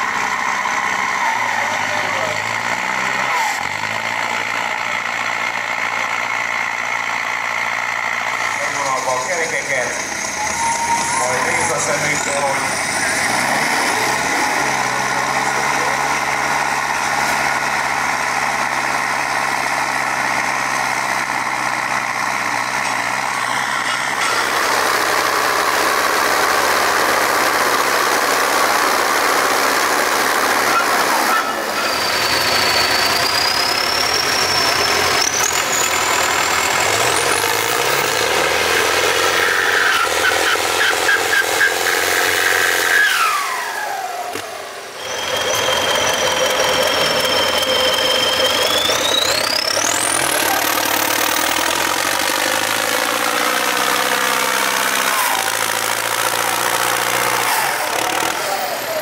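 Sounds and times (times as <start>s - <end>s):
tractor engine running hard: 0.0s - 59.0s
high whistle gliding upward: 10.2s - 12.4s.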